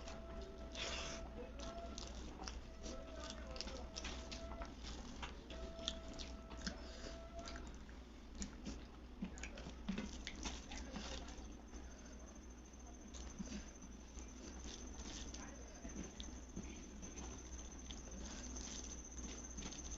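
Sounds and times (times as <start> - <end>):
chewing with wet mouth smacks: 0.0 - 11.7, 12.8 - 19.9
faint steady tone: 10.5 - 19.9.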